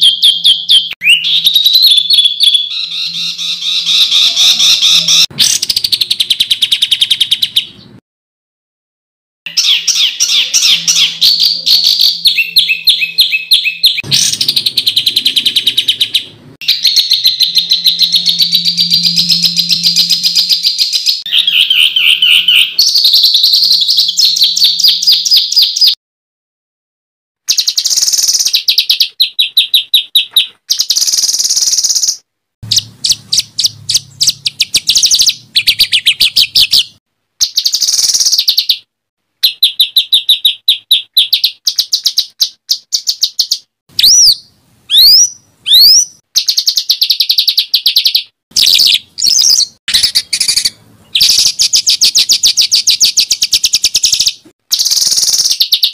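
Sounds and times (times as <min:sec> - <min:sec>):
songbird harsh repeated high notes: 0:00.0 - 0:07.6, 0:09.5 - 0:25.8.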